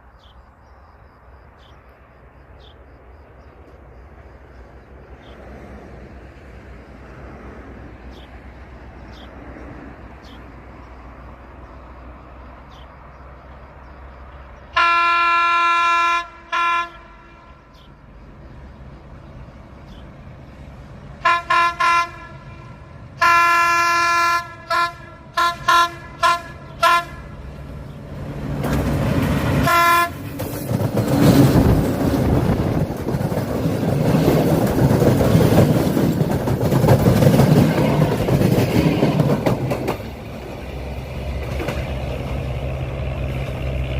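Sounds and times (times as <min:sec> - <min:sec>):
locomotive horn blasts: 0:14.7 - 0:17.7, 0:21.2 - 0:27.4, 0:29.6 - 0:30.3
train wheels rumbling and clattering: 0:26.7 - 0:43.9.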